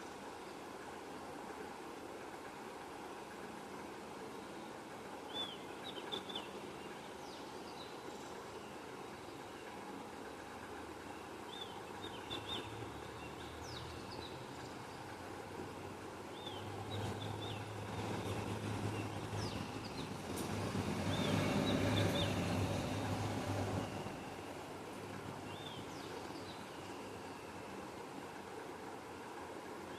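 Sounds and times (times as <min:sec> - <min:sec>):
small birds chirping: 0:16.3 - 0:23.2
passing vehicle hum: 0:16.6 - 0:25.9.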